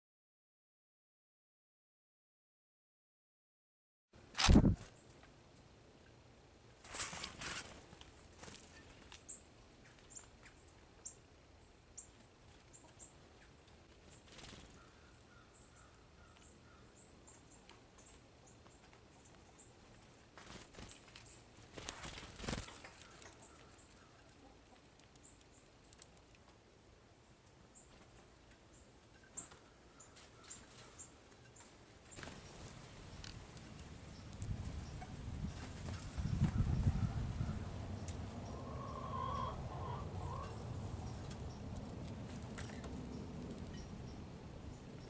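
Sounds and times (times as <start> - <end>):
wing flutter rustles: 4.3 - 5.0, 6.8 - 10.4, 13.9 - 15.0, 19.3 - 24.4, 29.4 - 36.8.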